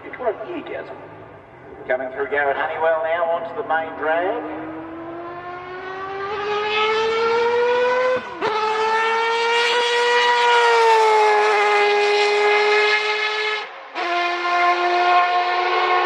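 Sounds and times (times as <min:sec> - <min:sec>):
race car engine at high revs: 0:04.3 - 0:16.0.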